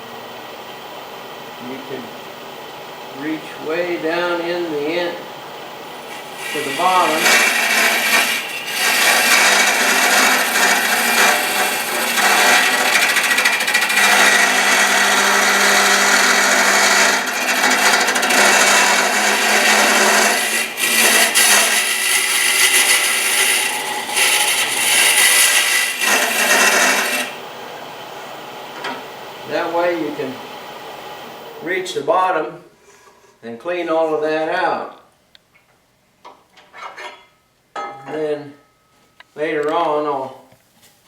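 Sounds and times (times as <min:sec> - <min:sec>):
wood lathe humming: 0:05.9 - 0:28.1
cutter scraping wood: 0:06.0 - 0:27.4.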